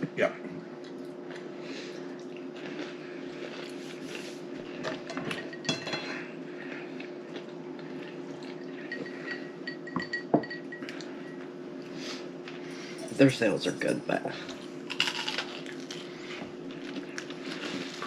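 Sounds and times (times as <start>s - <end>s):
steady low hum: 0.0s - 18.0s
dishes and cutlery clinking: 4.8s - 6.3s, 8.8s - 11.0s.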